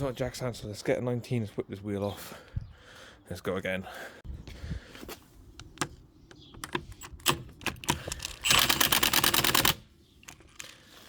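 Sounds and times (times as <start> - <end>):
fast ratchet clicks: 8.0 - 9.8.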